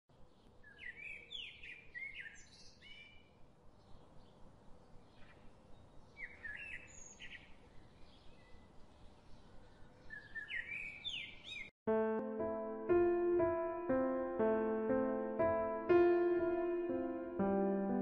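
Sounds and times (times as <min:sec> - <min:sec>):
birds chirping: 0:00.1 - 0:11.7.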